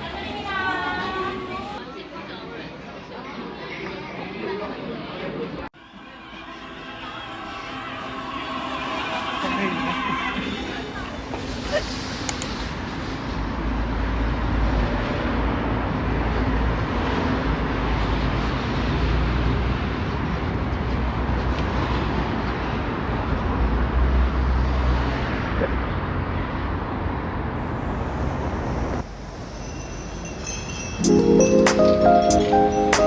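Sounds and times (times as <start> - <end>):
music: 5.8 - 10.5, 31.0 - 33.0
vehicle road noise: 10.0 - 29.7.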